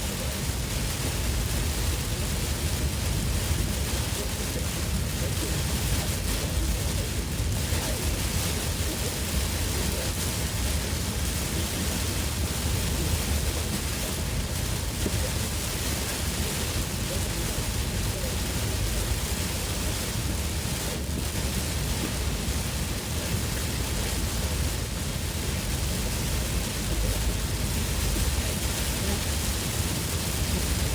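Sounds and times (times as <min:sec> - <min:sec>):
heavy rain on a car: 0:00.0 - 0:30.9
low road rumble: 0:00.0 - 0:30.9.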